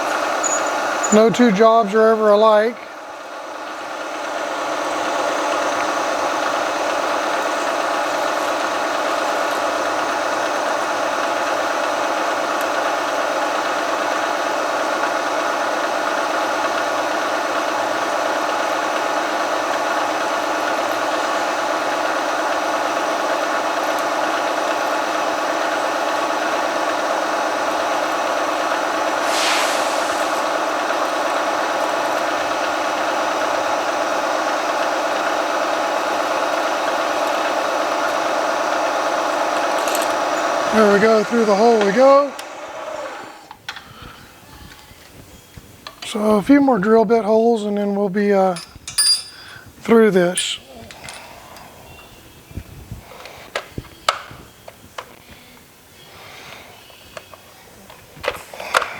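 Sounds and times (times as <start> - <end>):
milling machine hum: 0.0 - 45.1
brief high hiss: 29.1 - 31.0.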